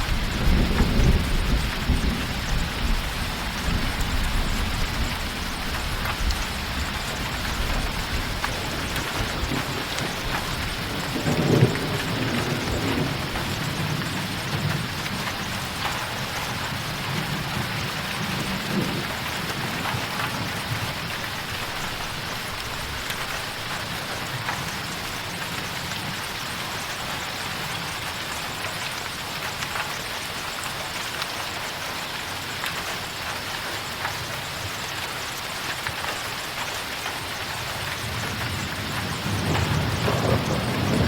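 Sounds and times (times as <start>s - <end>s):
heavy rain on a tin roof: 0.0s - 41.0s.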